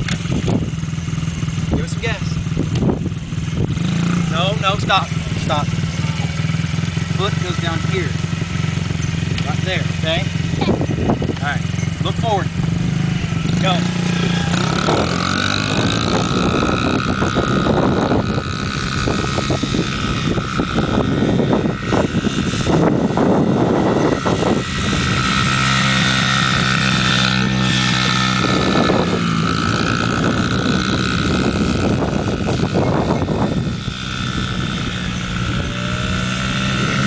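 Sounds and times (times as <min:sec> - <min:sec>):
dirt bike engine running: 0:00.0 - 0:37.0.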